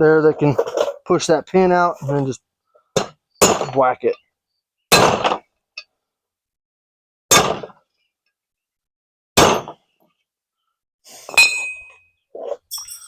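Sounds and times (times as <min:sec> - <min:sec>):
hammer striking metal punch: 0:09.4 - 0:09.8
ringing metal clink: 0:11.3 - 0:12.1, 0:12.7 - 0:13.0.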